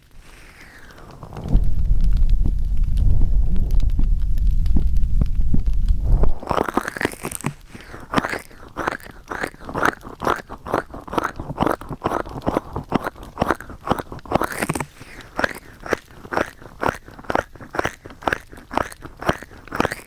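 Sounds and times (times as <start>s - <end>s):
crunchy rubbing on microphone: 0.0s - 20.0s
microphone handling rumble: 1.0s - 6.6s.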